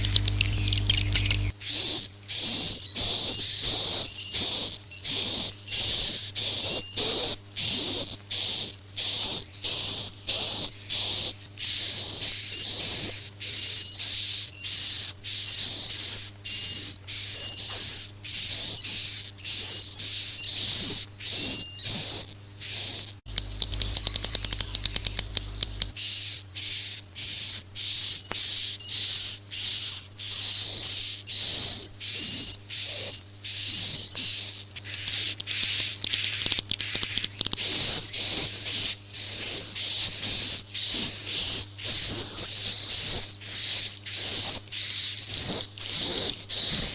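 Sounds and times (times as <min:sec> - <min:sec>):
rapid buzzy clicking: 0:00.0 - 0:01.8, 0:23.3 - 0:26.0, 0:34.6 - 0:42.6.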